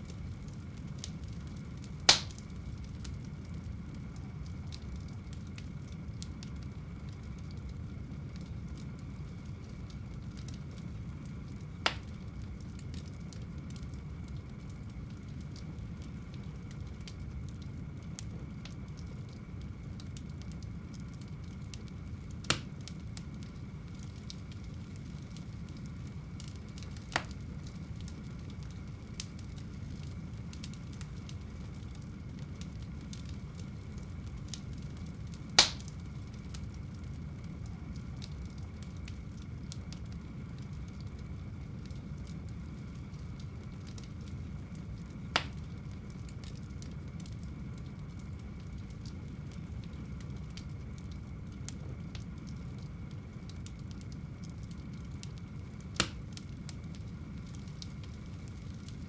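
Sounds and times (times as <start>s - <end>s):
burning logs popping: 0.0s - 59.0s
fire flames rushing: 0.1s - 13.3s, 13.9s - 47.3s.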